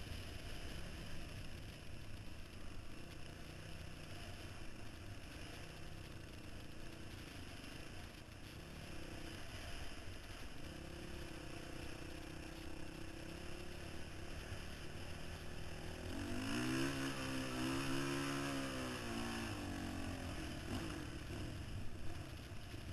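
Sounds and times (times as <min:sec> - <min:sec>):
dirt bike engine revving: 0:12.9 - 0:21.8.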